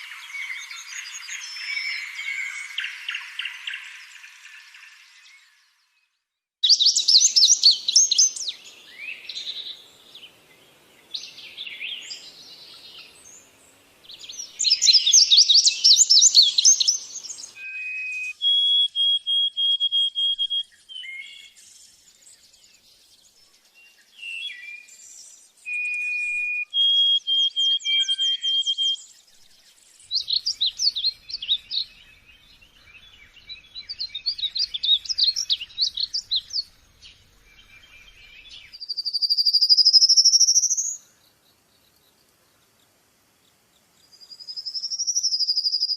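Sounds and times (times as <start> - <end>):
birds whistled notes: 6.6 - 9.8, 14.2 - 41.0, 44.0 - 45.9.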